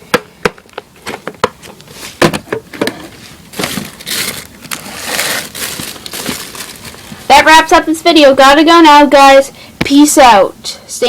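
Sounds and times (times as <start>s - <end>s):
plastic rustling: 1.9s - 7.3s.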